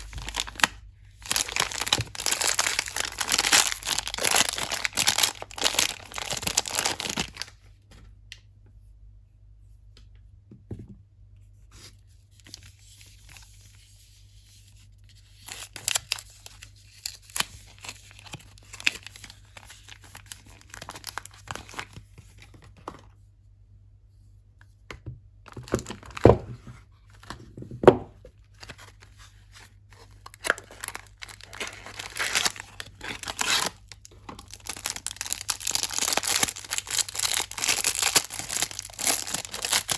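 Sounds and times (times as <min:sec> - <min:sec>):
packaging tearing and crinkling: 0:00.0 - 0:07.6, 0:15.4 - 0:22.0, 0:29.9 - 0:39.9.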